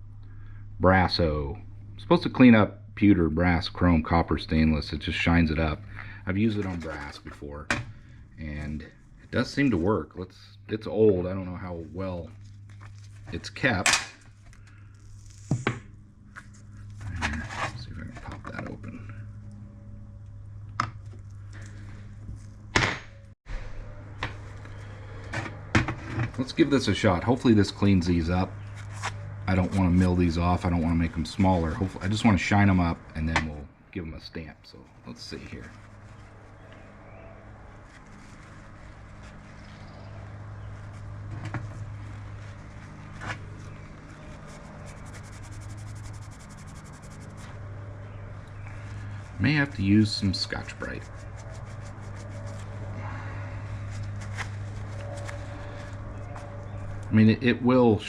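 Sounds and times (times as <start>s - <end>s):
steady low hum: 0.0s - 58.0s
fine scratchy rubbing strokes: 11.6s - 15.7s, 35.0s - 47.8s, 48.7s - 56.9s
cloth rubbing metal pieces: 37.7s - 47.6s, 48.7s - 53.0s, 53.8s - 56.6s.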